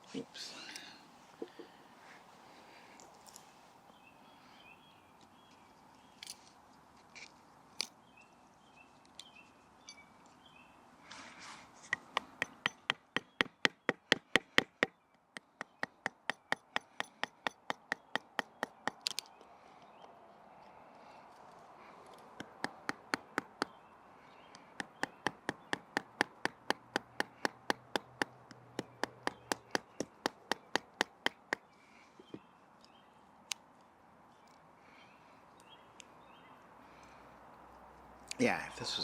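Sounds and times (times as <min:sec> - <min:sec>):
wooden baton striking knife spine: 0:11.9 - 0:14.7.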